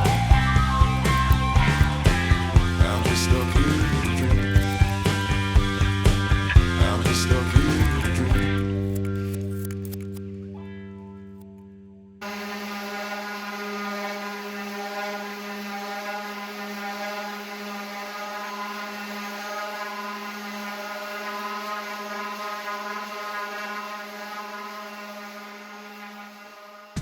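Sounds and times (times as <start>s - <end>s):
power tool motor whirring: 0.0s - 10.2s, 12.2s - 27.0s.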